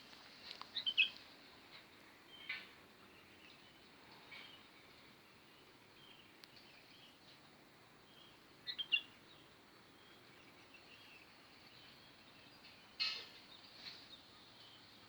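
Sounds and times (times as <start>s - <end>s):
small birds chirping: 0.4s - 7.4s, 8.1s - 15.0s.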